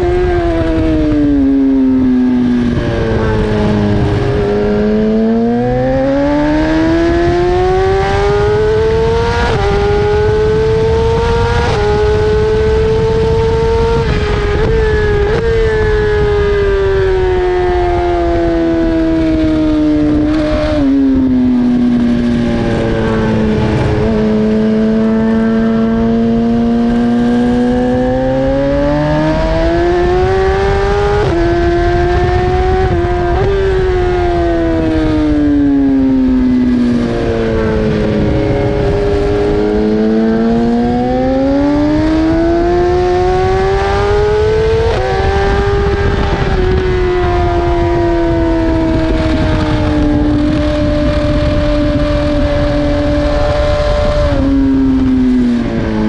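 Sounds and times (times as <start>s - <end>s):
motorcycle engine revving: 0.0s - 56.0s
wind rush: 0.0s - 56.0s.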